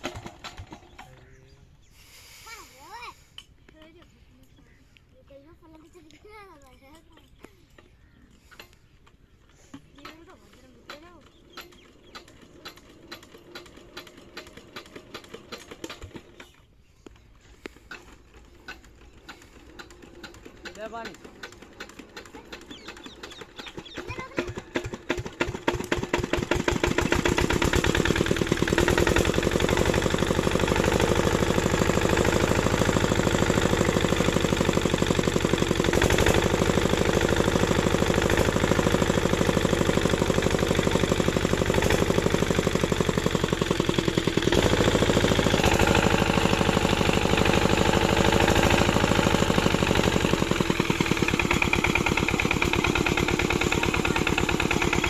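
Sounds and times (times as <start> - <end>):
diesel engine thudding: 17.9 - 55.0.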